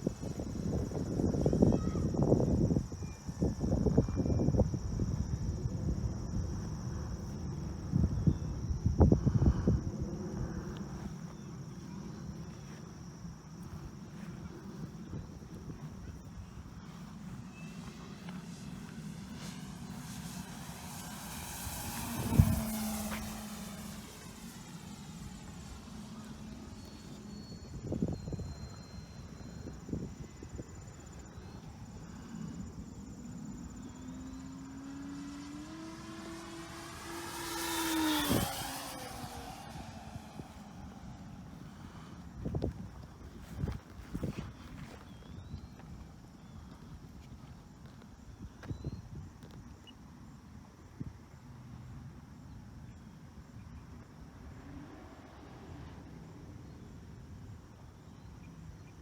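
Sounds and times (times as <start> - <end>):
model plane motor whining past: 0.0 - 12.4, 13.6 - 46.0
insects chirring: 0.0 - 59.0.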